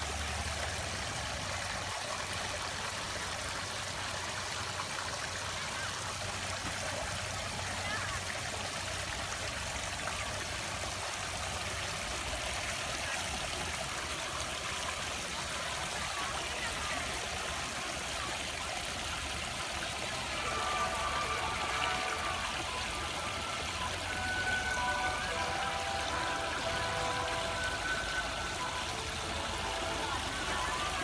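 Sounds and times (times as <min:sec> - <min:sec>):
water running and trickling: 0:00.0 - 0:31.0
steady musical tones: 0:20.2 - 0:31.0.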